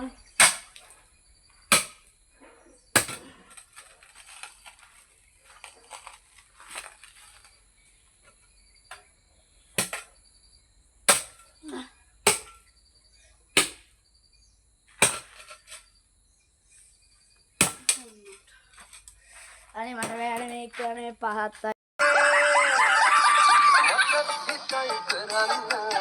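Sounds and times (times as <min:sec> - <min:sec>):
digging tool striking stony soil: 0:00.0 - 0:01.0, 0:01.7 - 0:05.0, 0:09.8 - 0:10.1, 0:11.1 - 0:11.6, 0:12.2 - 0:12.7, 0:13.6 - 0:14.0, 0:14.9 - 0:15.8, 0:17.6 - 0:19.0, 0:20.0 - 0:20.7.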